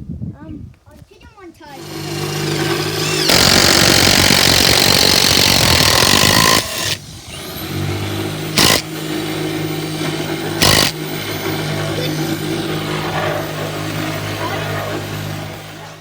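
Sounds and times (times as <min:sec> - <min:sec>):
power drill driving screws into wood: 0:01.8 - 0:14.4.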